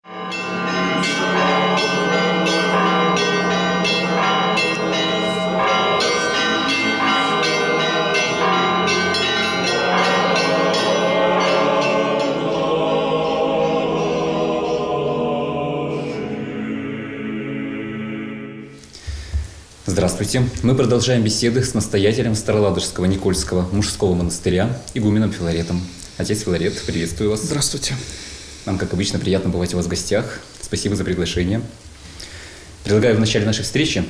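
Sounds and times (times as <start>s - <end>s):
church bells ringing: 0.0s - 14.9s.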